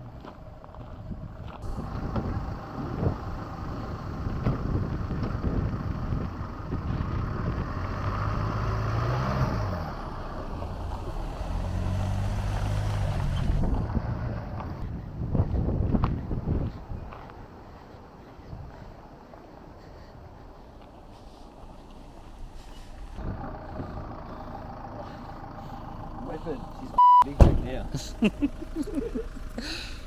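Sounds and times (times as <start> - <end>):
low engine hum: 0.0 - 30.0
wind buffeting microphone: 0.5 - 21.1, 22.4 - 24.4.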